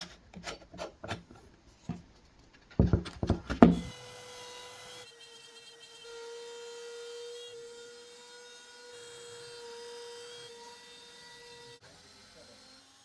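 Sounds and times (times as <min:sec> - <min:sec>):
wooden knocks and clatter: 0:00.4 - 0:03.9.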